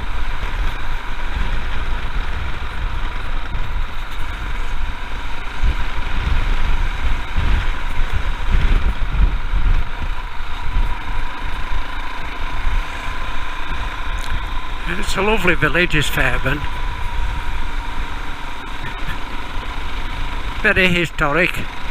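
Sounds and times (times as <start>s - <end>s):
wind buffeting microphone: 0.0s - 16.0s, 16.6s - 20.7s
motorcycle engine running: 0.0s - 21.9s.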